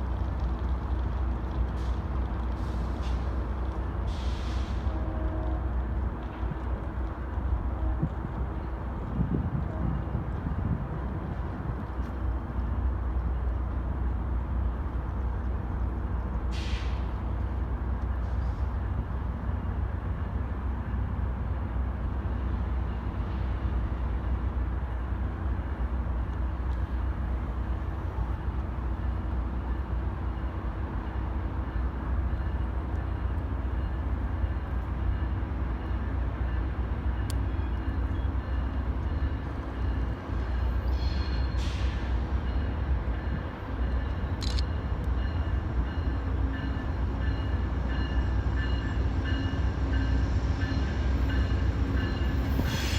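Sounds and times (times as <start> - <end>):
train rumbling: 0.0 - 52.9.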